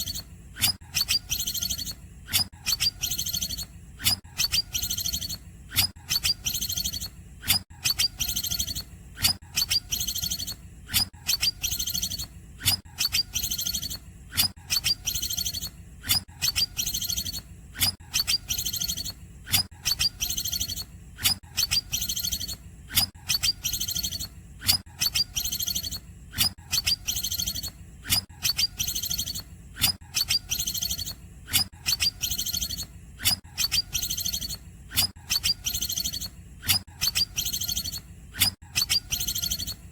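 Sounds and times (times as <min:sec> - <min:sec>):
bird chirping high-pitched phrases: 0:00.0 - 0:00.3, 0:01.0 - 0:03.7, 0:04.3 - 0:05.4, 0:06.0 - 0:07.1, 0:07.8 - 0:08.9, 0:09.6 - 0:10.6, 0:11.3 - 0:12.3, 0:13.0 - 0:14.0, 0:14.6 - 0:15.7, 0:16.4 - 0:17.4, 0:18.1 - 0:19.2, 0:19.8 - 0:20.9, 0:21.6 - 0:24.4, 0:25.0 - 0:26.0, 0:26.7 - 0:27.8, 0:28.4 - 0:29.5, 0:30.2 - 0:31.2, 0:31.9 - 0:32.9, 0:33.6 - 0:39.8.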